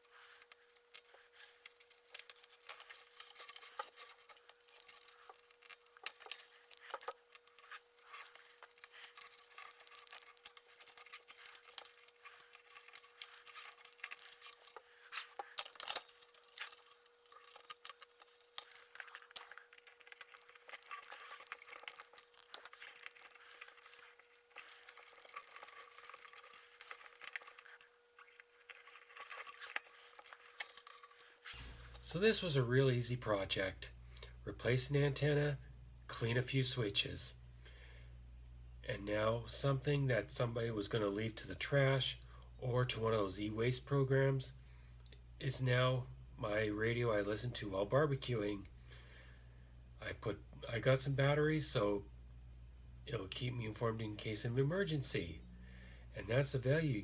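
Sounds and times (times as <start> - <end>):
wire scraping on plastic: 0.0 - 32.0.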